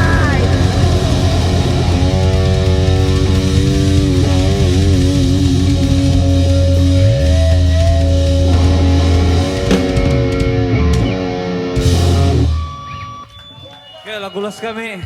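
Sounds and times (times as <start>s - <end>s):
bass guitar sustained notes: 0.0s - 13.3s
distorted electric guitar: 0.0s - 13.3s.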